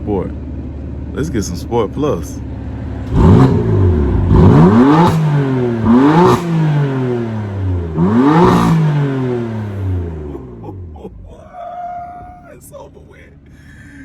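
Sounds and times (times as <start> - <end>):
car engine revving: 1.4 - 11.5.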